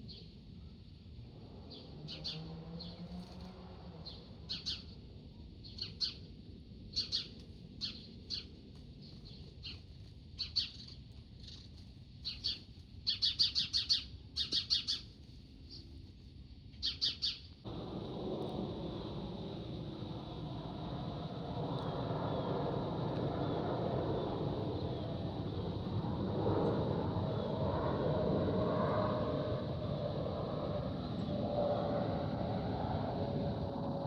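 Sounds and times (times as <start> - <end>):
low rushing noise: 17.7 - 34.0.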